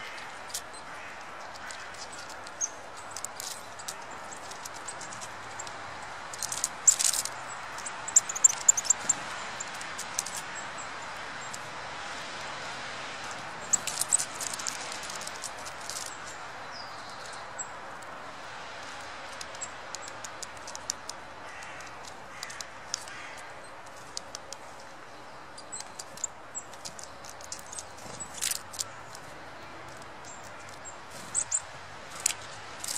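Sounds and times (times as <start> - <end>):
small birds high calls: 0.0 - 32.9.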